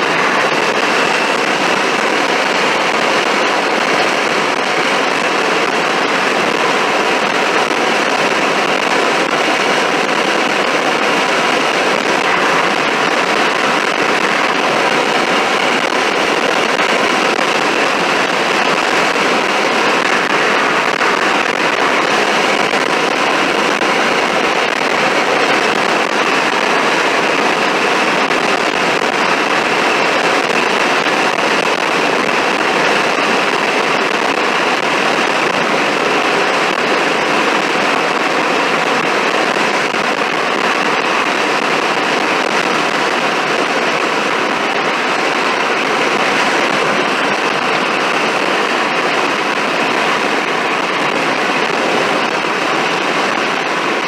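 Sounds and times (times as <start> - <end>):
car road and wind noise: 11.9 - 16.4, 18.9 - 25.0.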